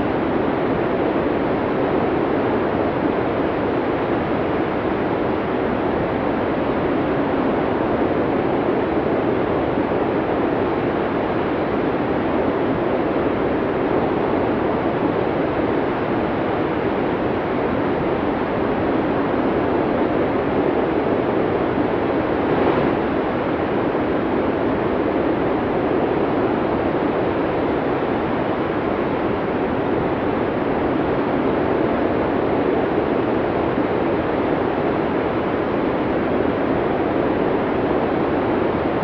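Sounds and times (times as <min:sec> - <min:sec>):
wind blowing hard: 0:18.1 - 0:30.2.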